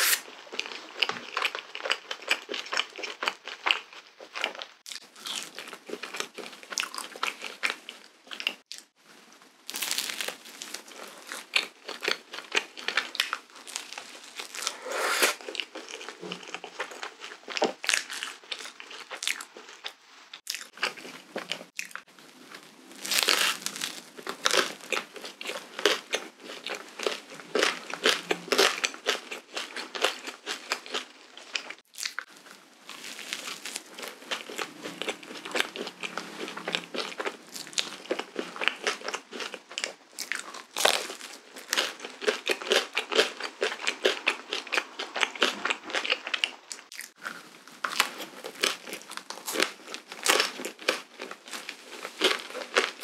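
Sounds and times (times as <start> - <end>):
crunching waffle crust: 0.0 - 53.0
soft mouth sounds: 14.5 - 16.8.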